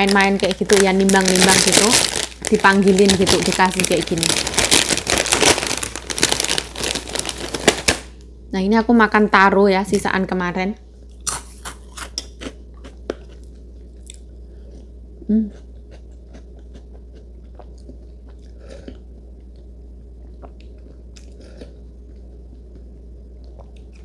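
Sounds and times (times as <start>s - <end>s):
low hum: 0.0s - 24.0s
person chewing: 11.1s - 24.0s
person humming mm: 15.2s - 15.6s.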